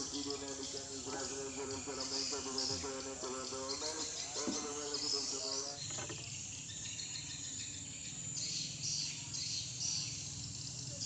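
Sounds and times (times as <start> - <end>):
person speaking: 0.0 - 5.6
crickets chirring: 0.0 - 11.0.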